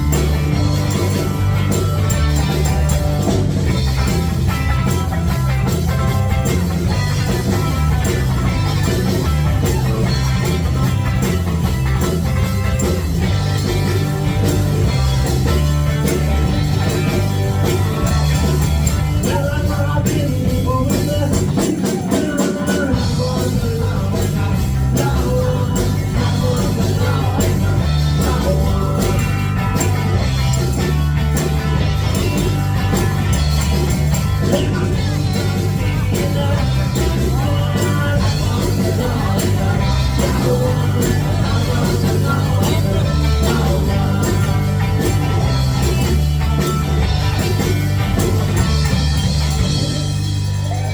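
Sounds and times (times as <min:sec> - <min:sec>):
live rock band playing: 0:00.0 - 0:50.9
person singing: 0:18.4 - 0:30.8, 0:34.2 - 0:47.5.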